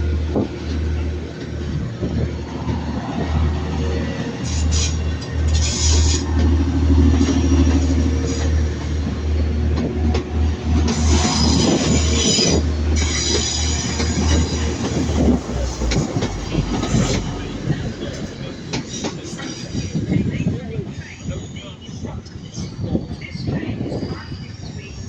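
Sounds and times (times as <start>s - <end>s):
low train hum: 0.0s - 25.0s
train wheels squealing: 10.9s - 15.2s.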